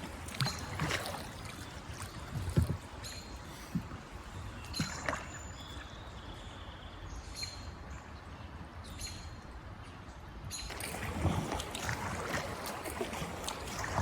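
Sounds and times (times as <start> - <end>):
fast-moving river water: 0.0 - 14.0.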